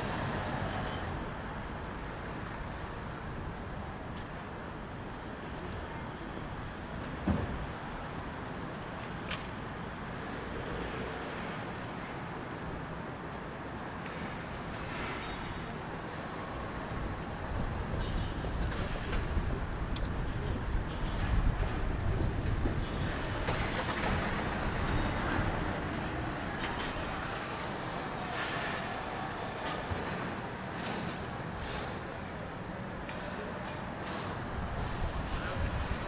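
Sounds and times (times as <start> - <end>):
train rumbling past: 13.5 - 36.0.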